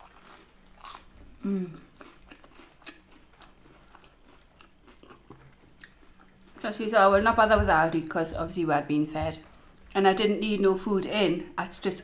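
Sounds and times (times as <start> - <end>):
person humming: 1.4 - 1.8
chewing with wet mouth clicks: 1.9 - 6.6.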